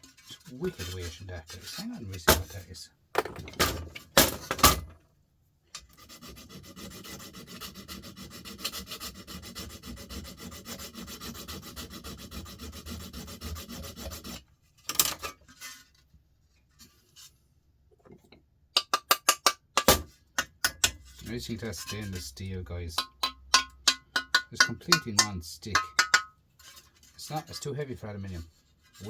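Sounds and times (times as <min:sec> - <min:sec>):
rough scraping on metal: 0:00.0 - 0:02.7, 0:05.8 - 0:17.5, 0:20.0 - 0:29.0
knocks on metal: 0:23.0 - 0:26.3
metal part clattering: 0:23.0 - 0:27.1.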